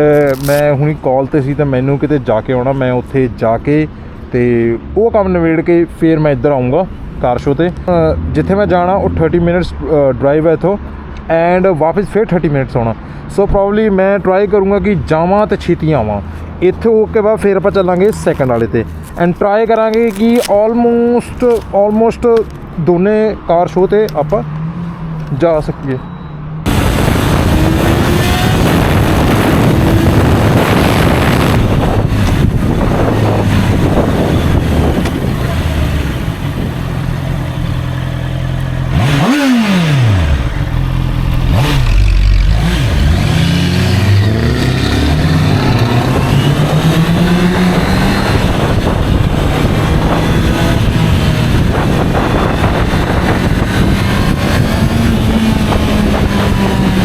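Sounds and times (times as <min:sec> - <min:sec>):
motorcycle engine accelerating: 0:26.4 - 0:57.0.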